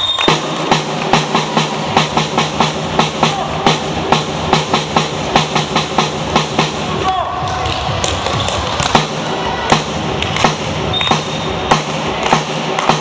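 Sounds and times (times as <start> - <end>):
spectators clapping rhythmically: 0.0 - 2.4, 6.1 - 13.0.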